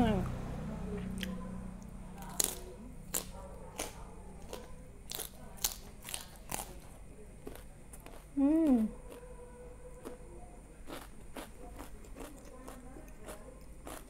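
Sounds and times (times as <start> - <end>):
crunchy chewing: 1.0 - 14.0
person humming mmm: 8.4 - 8.9.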